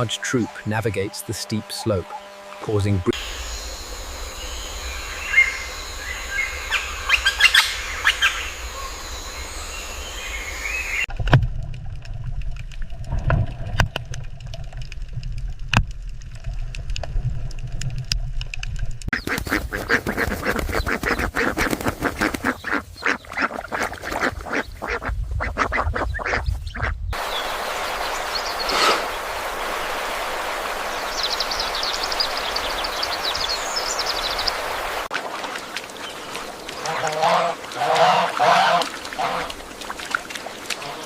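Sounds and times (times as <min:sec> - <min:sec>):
ducks quacking: 0:19.2 - 0:27.3, 0:36.3 - 0:39.6, 0:40.7 - 0:41.0.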